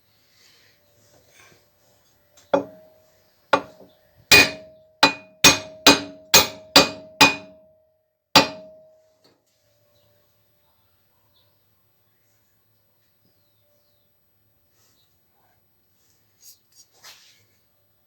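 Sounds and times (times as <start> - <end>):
hammer striking metal: 2.6 - 2.8, 4.3 - 7.6, 8.4 - 8.8.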